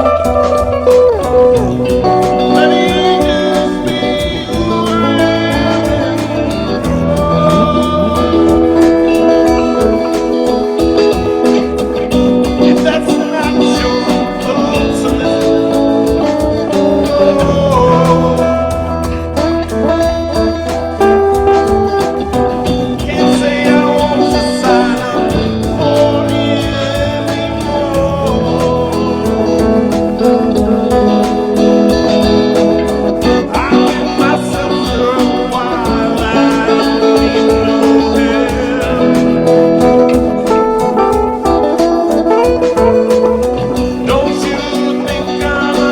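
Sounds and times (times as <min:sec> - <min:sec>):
guitar with bending note: 0:00.0 - 0:45.9
improvised band jam: 0:00.0 - 0:45.9
steady beat: 0:00.0 - 0:45.9.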